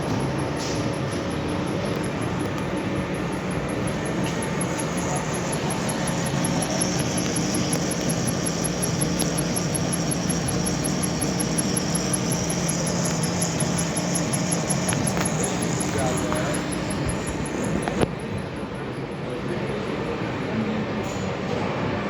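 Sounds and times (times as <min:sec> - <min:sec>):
metalworking machinery humming: 0:00.0 - 0:21.3.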